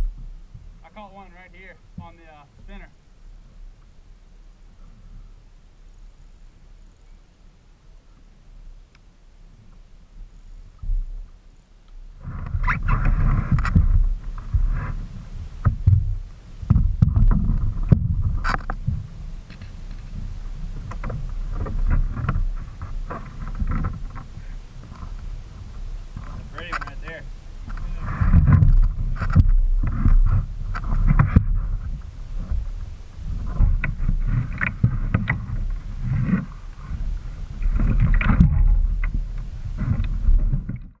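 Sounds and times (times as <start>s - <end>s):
wind rumbling: 0.0s - 41.0s
kayak handling noise: 10.7s - 41.0s.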